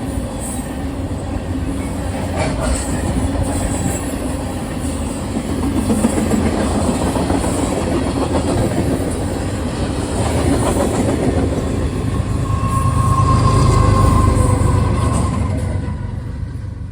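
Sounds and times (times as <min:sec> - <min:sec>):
train wheels clattering over rails: 0:00.0 - 0:12.7
high-pitched squeal: 0:09.9 - 0:16.5.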